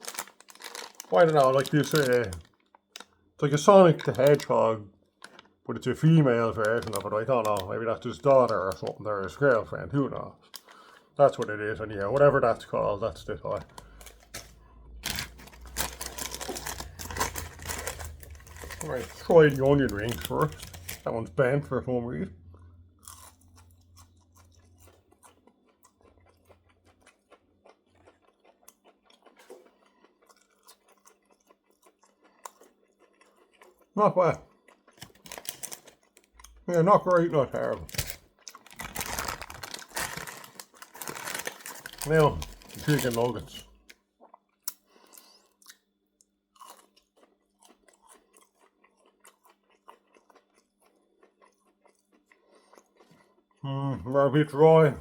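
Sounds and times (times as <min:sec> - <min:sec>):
crisp crunching bites: 0:00.0 - 0:03.1, 0:06.4 - 0:07.7, 0:13.2 - 0:21.1, 0:34.9 - 0:43.9
chewing fried food: 0:00.0 - 0:03.2, 0:03.9 - 0:09.8, 0:10.4 - 0:21.1, 0:22.4 - 0:54.2.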